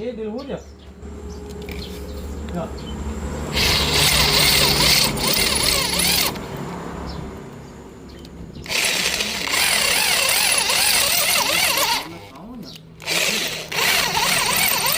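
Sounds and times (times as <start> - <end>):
electric drill drilling metal: 3.5 - 6.4, 8.7 - 12.2, 13.0 - 14.9.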